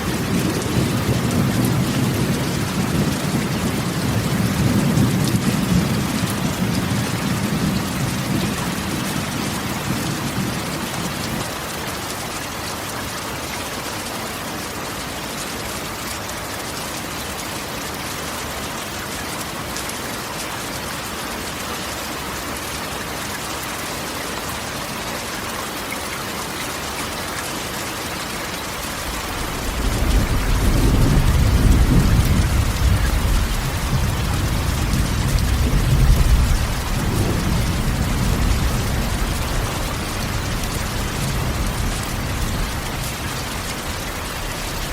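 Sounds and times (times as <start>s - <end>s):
thunder rumbling: 0.0s - 11.4s, 28.8s - 44.9s
rain on a tin roof: 0.0s - 44.9s.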